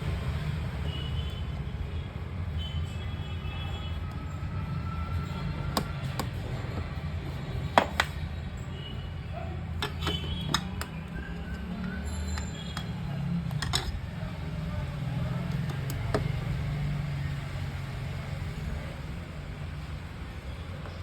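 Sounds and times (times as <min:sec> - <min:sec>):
clicks of small hard parts: 0:09.8 - 0:14.0, 0:15.5 - 0:16.4.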